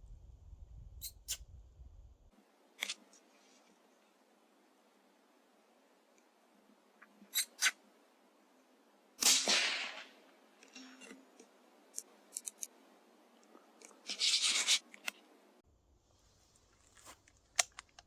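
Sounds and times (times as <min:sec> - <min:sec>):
rifle shot: 0:09.2 - 0:10.2.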